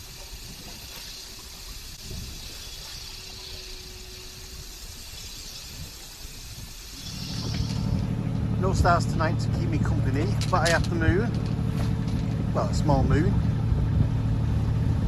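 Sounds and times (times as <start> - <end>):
low rumble: 7.0 - 15.0.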